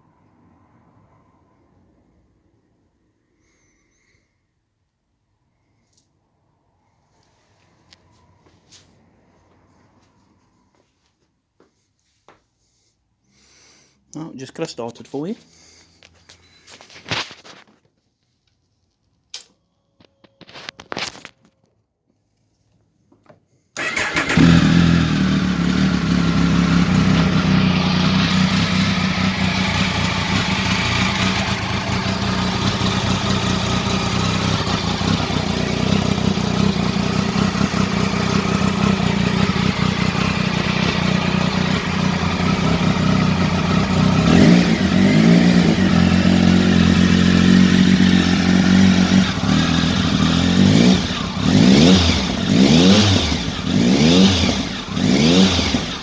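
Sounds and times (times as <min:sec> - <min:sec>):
motorcycle engine idling and revving: 0:23.8 - 0:56.0.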